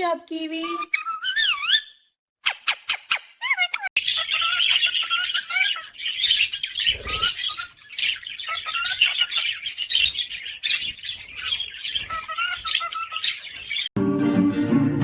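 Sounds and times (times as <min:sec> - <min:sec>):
parrots chirping and squawking: 0:00.6 - 0:13.9.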